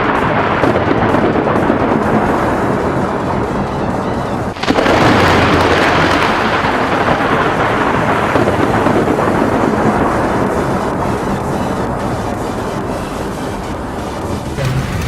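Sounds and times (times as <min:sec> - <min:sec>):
rolling thunder: 0:00.0 - 0:11.5, 0:14.3 - 0:15.0
sharp thunderclap: 0:04.6 - 0:11.3, 0:14.4 - 0:15.0.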